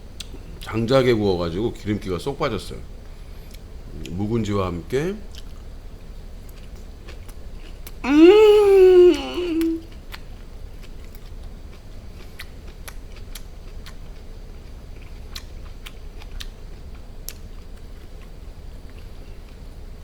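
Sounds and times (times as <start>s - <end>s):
low steady hum: 0.0s - 20.0s
person chewing food: 9.4s - 18.3s.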